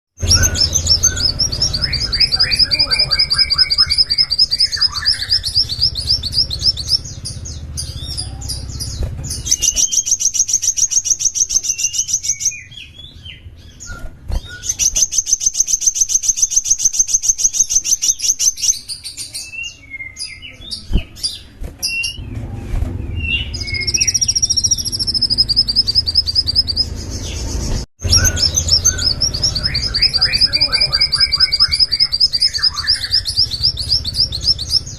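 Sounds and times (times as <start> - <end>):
bird singing trills: 0.2 - 22.4, 23.0 - 34.9
low rumble: 22.1 - 30.6.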